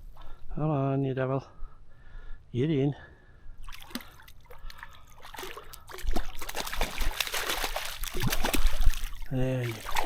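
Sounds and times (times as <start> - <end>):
fish splashing in water: 3.7 - 10.0.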